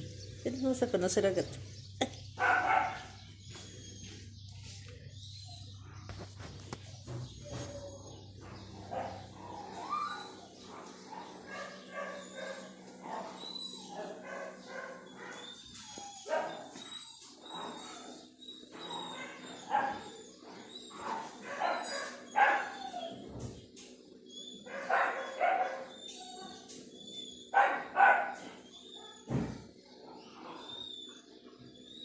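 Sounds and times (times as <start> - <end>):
dog yipping and whining: 8.9 - 10.6, 11.5 - 23.5, 24.3 - 29.3, 30.4 - 32.0.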